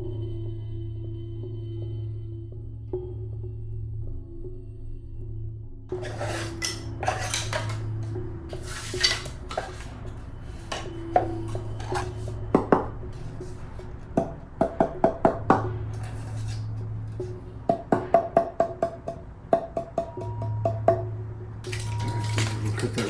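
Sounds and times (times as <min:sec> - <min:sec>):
low droning background music: 0:00.0 - 0:23.0
hard objects knocking and tapping: 0:06.0 - 0:21.1.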